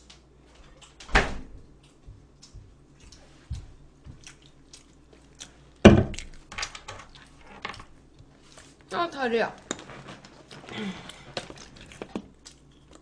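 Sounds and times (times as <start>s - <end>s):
chewing and mouth clicks: 1.8s - 6.5s, 10.4s - 13.0s.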